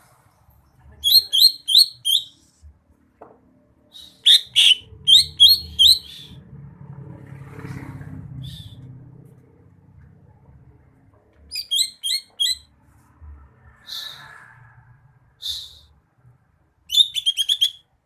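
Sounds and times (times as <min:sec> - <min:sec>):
bird singing high chirps: 0:01.0 - 0:02.4, 0:03.9 - 0:06.4, 0:08.4 - 0:08.8, 0:11.5 - 0:12.7, 0:16.9 - 0:17.9.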